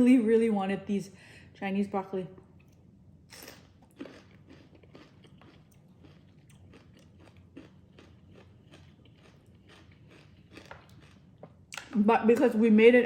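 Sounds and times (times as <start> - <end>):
person chewing crunchy vegetables: 2.6 - 11.9.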